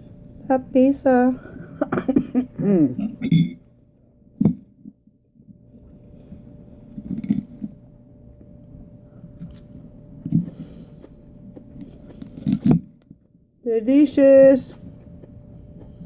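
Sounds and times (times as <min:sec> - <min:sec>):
person chewing food: 0:04.7 - 0:13.3, 0:14.8 - 0:16.0.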